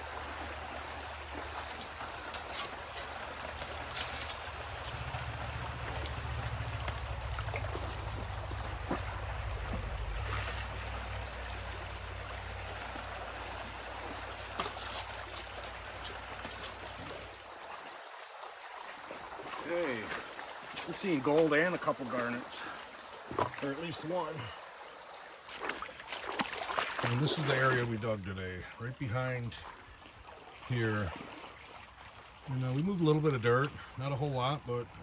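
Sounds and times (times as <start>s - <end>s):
river water rushing and trickling: 0.0s - 35.0s
gravel clicks: 1.6s - 11.9s
low rumble: 4.4s - 13.1s.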